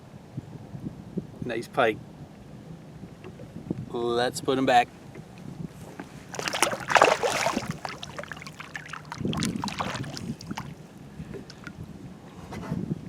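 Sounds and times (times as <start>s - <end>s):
water splashing: 6.3s - 11.7s.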